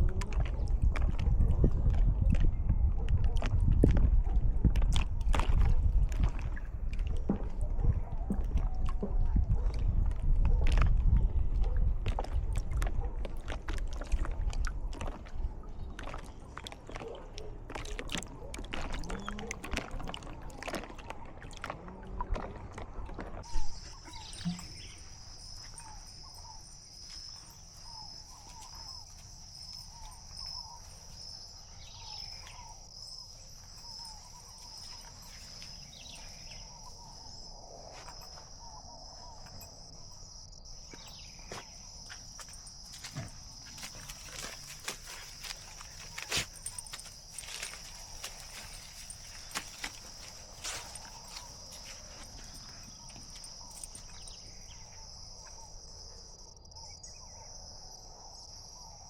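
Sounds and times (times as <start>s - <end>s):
insect trill: 23.4s - 59.0s.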